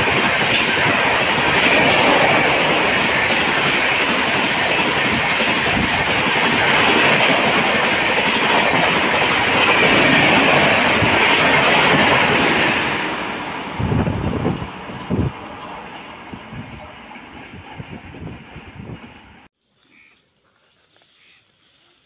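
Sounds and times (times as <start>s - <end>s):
clacks over rail joints: 0.0s - 7.4s
train wheels roaring on rail: 0.0s - 19.5s.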